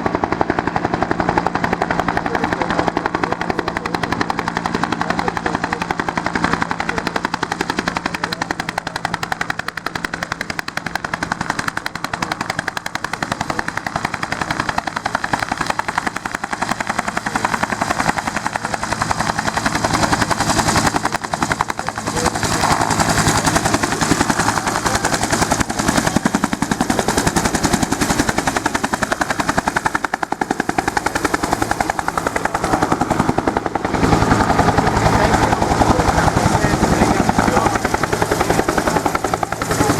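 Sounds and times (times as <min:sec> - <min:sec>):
helicopter rotor beating: 0:00.0 - 0:39.9.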